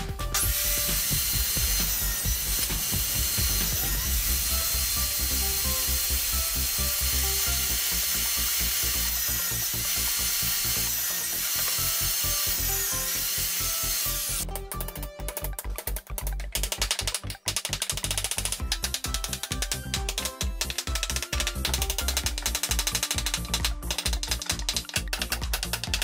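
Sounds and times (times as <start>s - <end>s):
table saw cutting wood: 0.1s - 14.5s.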